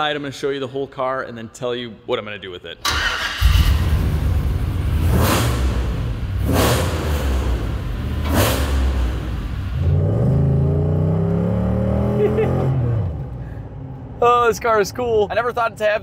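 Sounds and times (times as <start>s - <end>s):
engine accelerating: 2.9s - 13.4s
car engine rumbling: 2.9s - 16.0s.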